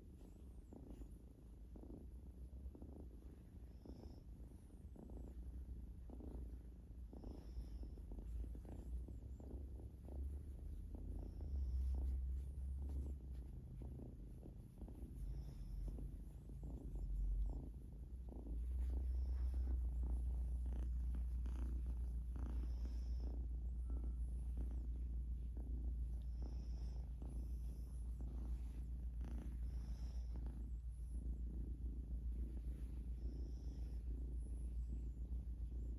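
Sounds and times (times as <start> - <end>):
cat purring: 0.0 - 35.9.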